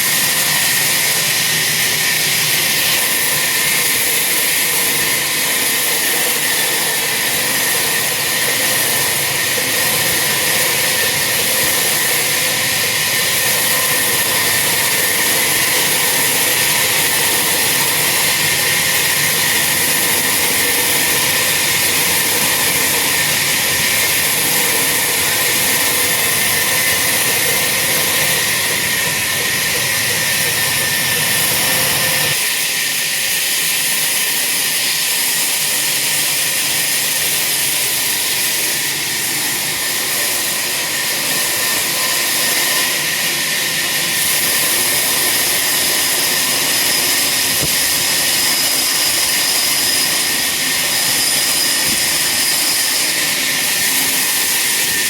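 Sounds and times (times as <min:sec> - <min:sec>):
chainsaw cutting tree trunk: 0:44.2 - 0:55.0.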